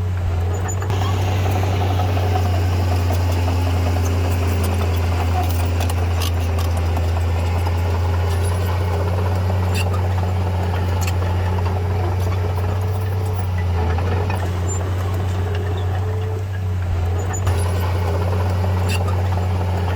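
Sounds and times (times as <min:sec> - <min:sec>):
diesel engine droning: 0:00.0 - 0:19.9.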